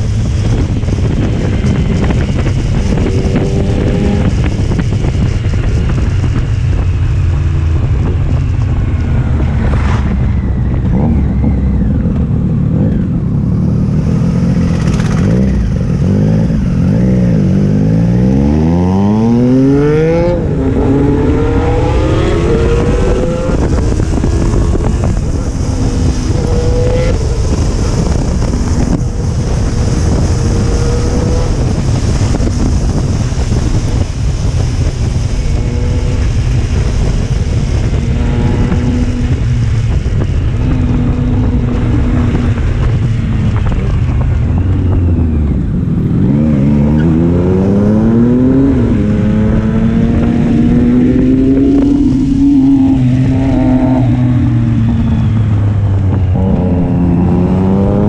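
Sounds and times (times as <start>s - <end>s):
motorcycle engine accelerating: 0.0s - 58.0s
wind rushing over microphone: 0.0s - 58.0s.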